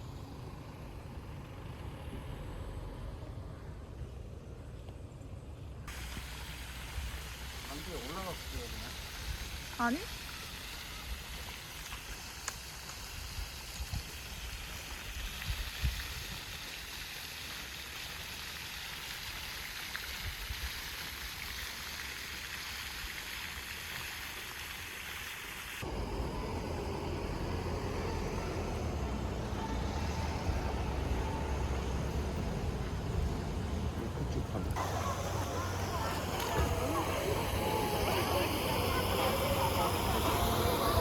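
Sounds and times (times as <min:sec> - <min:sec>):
car road noise inside cabin: 0:25.8 - 0:41.0.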